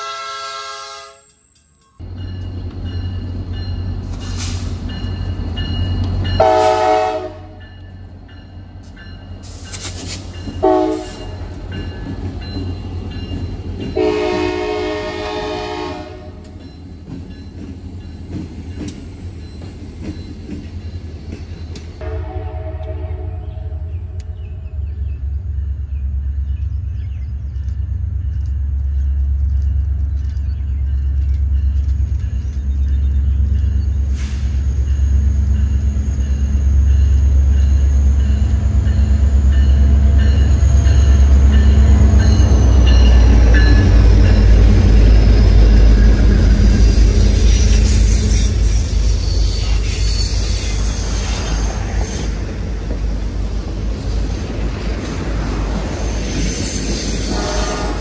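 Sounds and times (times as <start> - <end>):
diesel locomotive engine rumble: 0.0 - 58.0.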